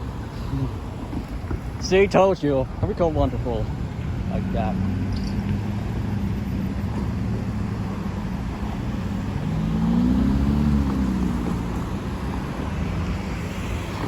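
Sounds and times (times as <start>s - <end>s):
road traffic rumbling: 0.0s - 14.0s
vehicle engine passing by: 4.1s - 14.0s.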